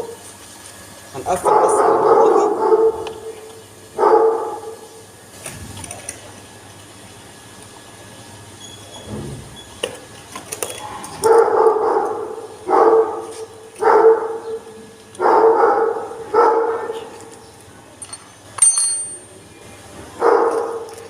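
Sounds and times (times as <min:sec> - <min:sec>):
dog barking: 0:01.3 - 0:03.4, 0:04.0 - 0:04.8, 0:11.2 - 0:17.1, 0:20.2 - 0:20.9.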